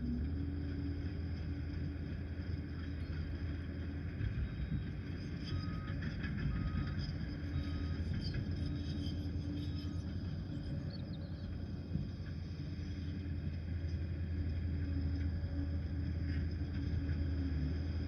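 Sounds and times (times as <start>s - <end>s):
dozer diesel engine running: 0.0s - 18.0s
short beeps: 5.4s - 11.2s.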